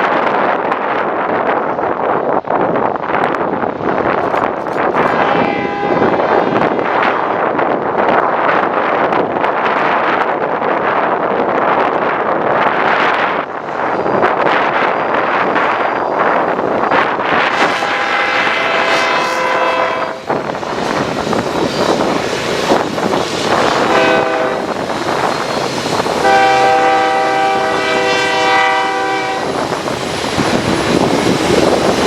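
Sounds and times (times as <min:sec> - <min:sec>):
wind buffeting microphone: 0:00.0 - 0:32.0
locomotive air horn blasts: 0:05.0 - 0:06.2, 0:17.5 - 0:20.4, 0:23.8 - 0:24.8, 0:26.2 - 0:29.6.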